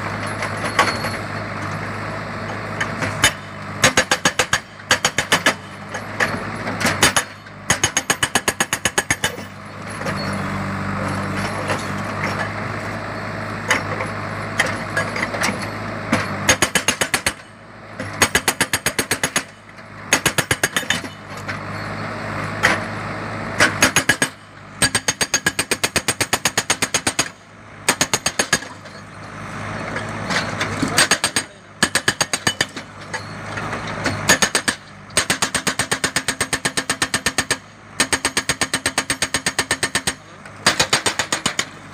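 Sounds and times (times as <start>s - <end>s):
diesel engine running: 0.0s - 41.9s
hydraulic breaker hammering: 2.8s - 10.4s, 13.6s - 21.6s, 23.6s - 29.1s, 30.2s - 41.9s.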